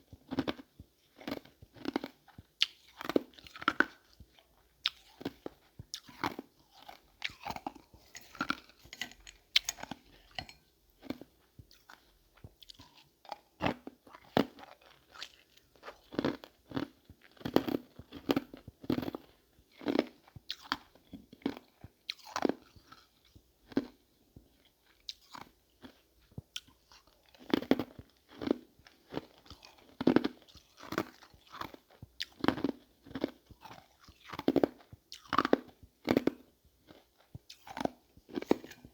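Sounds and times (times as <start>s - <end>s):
ice crunching between teeth: 0.4s - 19.2s, 37.0s - 38.9s.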